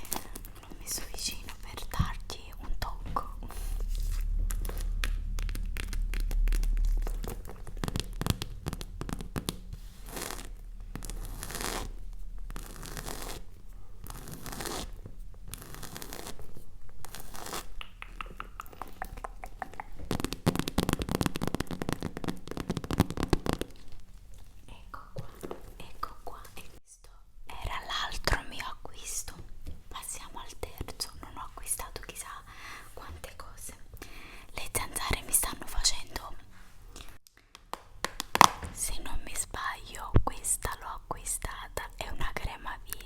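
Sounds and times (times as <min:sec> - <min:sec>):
crinkling packaging: 0:00.0 - 0:02.6, 0:03.6 - 0:17.8.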